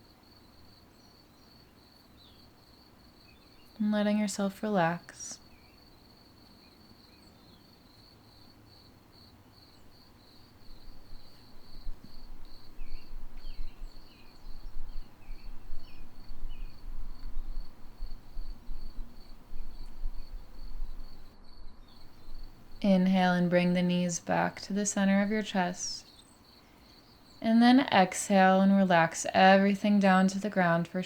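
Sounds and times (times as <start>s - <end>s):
cricket chirping: 5.4s - 22.8s.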